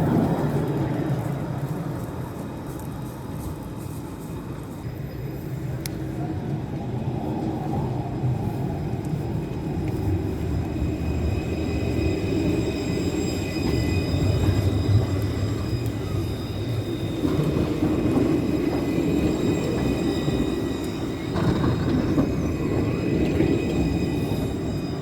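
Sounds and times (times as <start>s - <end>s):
tram rumbling on track: 0.0s - 25.0s.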